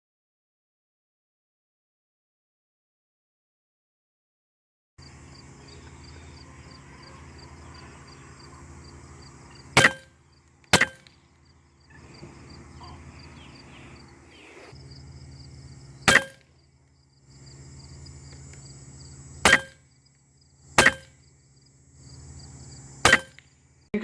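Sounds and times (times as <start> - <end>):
air rifle shots: 9.7 - 11.2, 16.0 - 16.4, 19.4 - 19.8, 20.8 - 21.2, 23.0 - 23.4.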